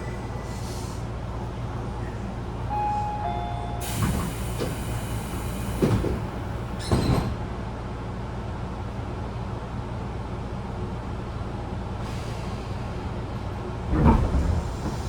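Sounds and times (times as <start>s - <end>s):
train low hum: 0.0s - 15.0s
heavy clunks: 13.9s - 15.0s.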